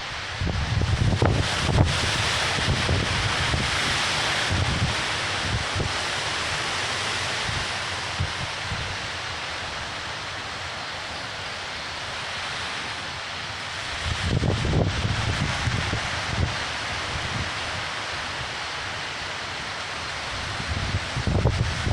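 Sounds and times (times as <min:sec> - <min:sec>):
wind gusts buffeting microphone: 0:00.0 - 0:09.2, 0:13.7 - 0:18.7, 0:19.6 - 0:21.9
storm wind and rain: 0:00.0 - 0:21.9.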